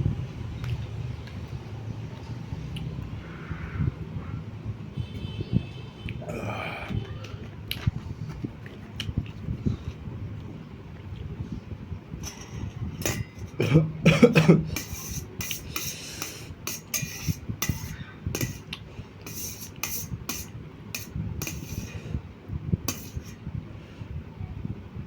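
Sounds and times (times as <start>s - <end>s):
throat vocal sound: 6.2s - 7.0s, 13.6s - 15.0s
cutlery scraping a plate: 12.2s - 13.7s, 14.6s - 22.0s, 22.9s - 23.4s.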